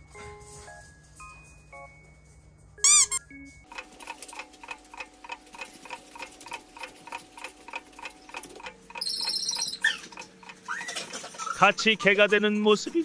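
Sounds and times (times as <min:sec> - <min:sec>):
clock-like ticking: 0:03.7 - 0:10.6.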